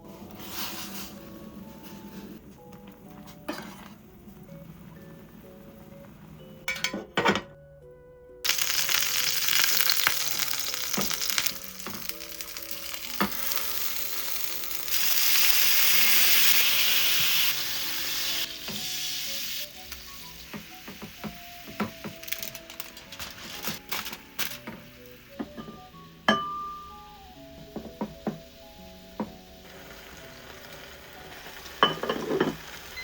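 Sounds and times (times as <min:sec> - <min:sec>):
food sizzling in hot oil: 0:08.5 - 0:33.0.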